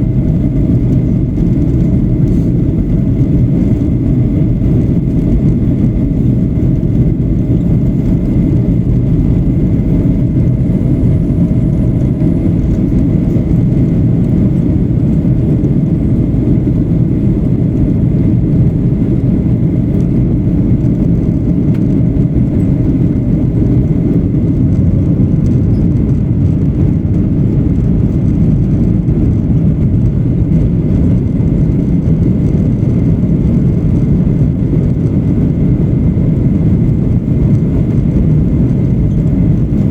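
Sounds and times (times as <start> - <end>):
airplane engines and airflow rush: 0.0 - 39.9.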